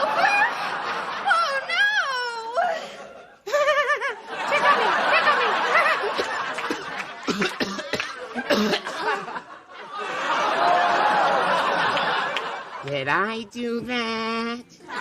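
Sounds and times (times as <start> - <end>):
audience laughing: 0.0 - 1.8, 2.9 - 12.9.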